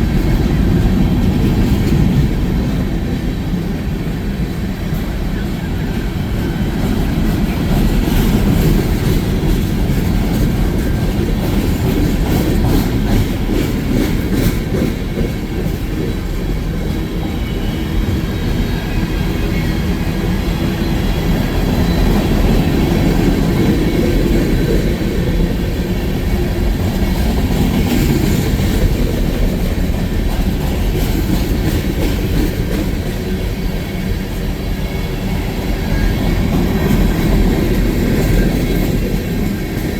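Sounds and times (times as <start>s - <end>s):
train rumbling past: 0.0s - 39.9s
train wheels clicking on rail joints: 0.0s - 39.9s.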